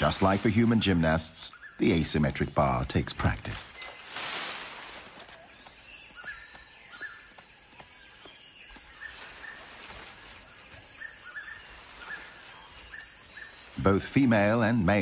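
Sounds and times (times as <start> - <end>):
high bird chirps: 3.6 - 14.9.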